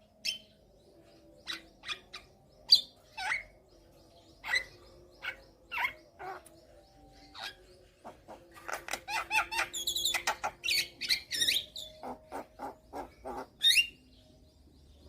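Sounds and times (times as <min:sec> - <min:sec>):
myna chirping and whistling: 0:08.5 - 0:14.1.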